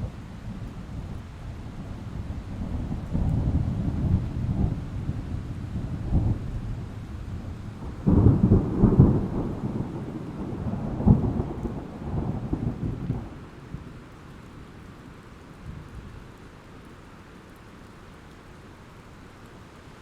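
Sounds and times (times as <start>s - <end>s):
thunderclap rumbling and cracking: 0.0s - 13.9s
rain hissing: 0.0s - 20.0s.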